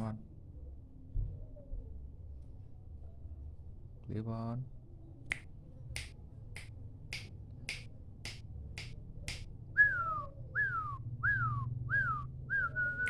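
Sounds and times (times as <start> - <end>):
sharp clicks: 6.0 - 9.5.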